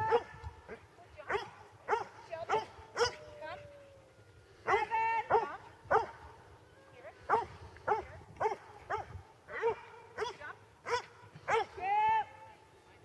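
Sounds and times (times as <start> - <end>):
dog barking: 1.3 - 3.2, 4.7 - 6.1, 7.3 - 11.7.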